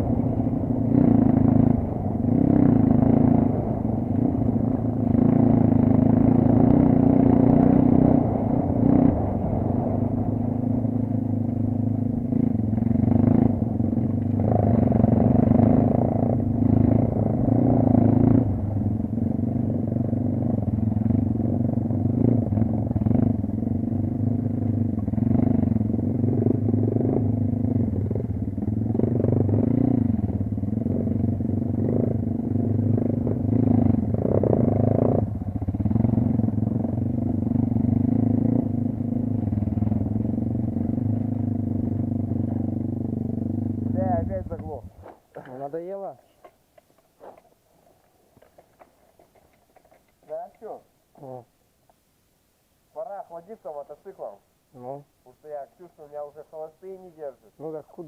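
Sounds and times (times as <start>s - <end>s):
dirt bike engine revving: 0.0s - 45.0s.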